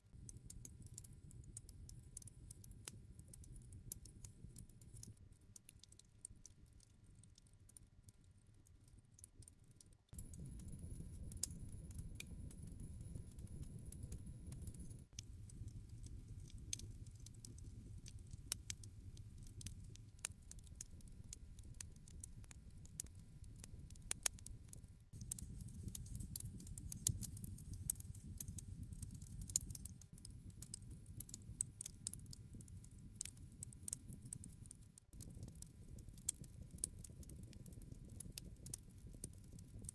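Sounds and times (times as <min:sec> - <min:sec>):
low rumble of flames: 0:10.2 - 0:24.4, 0:25.2 - 0:39.9
wood fire crackling: 0:15.2 - 0:24.5, 0:25.2 - 0:39.9.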